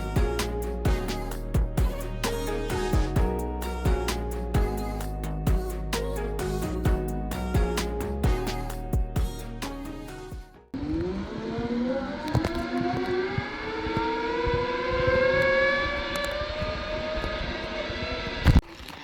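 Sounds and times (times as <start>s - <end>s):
background music: 0.0s - 10.8s.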